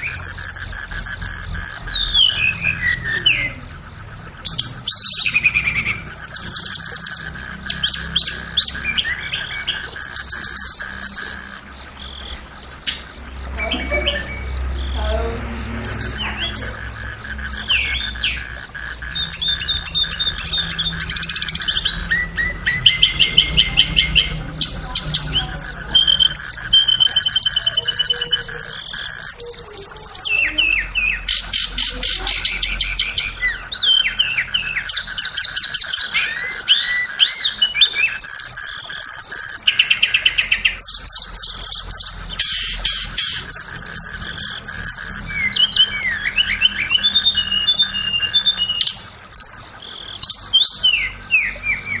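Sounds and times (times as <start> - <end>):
faint steady drone: 0.0 - 52.0
flycatcher song: 0.0 - 52.0.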